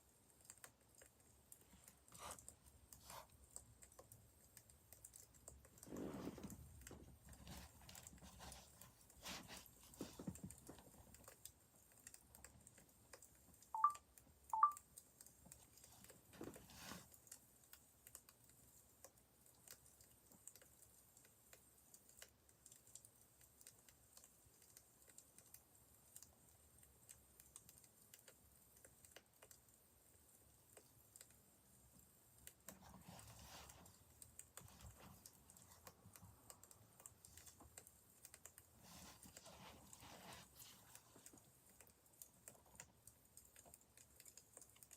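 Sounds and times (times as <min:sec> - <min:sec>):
short electronic beeps: 0:13.8 - 0:14.0, 0:14.6 - 0:14.8.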